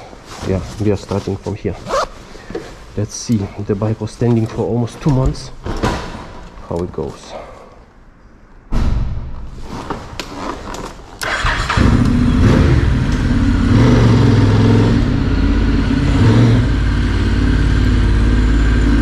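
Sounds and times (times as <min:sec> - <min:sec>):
motorcycle engine cranking: 0:10.7 - 0:13.3
motorcycle engine revving and idling: 0:11.4 - 0:19.0.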